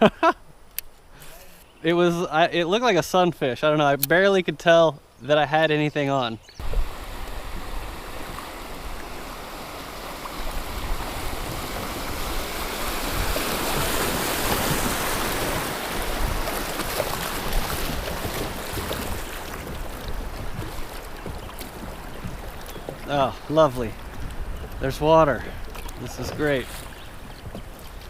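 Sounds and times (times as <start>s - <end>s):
river water rushing and splashing: 6.6s - 28.0s.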